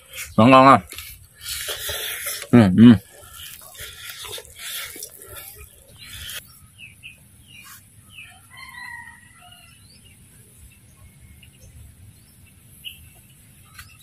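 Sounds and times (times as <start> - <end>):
rustling and handling noise: 0.0 - 6.4
small birds chirping: 0.0 - 14.0.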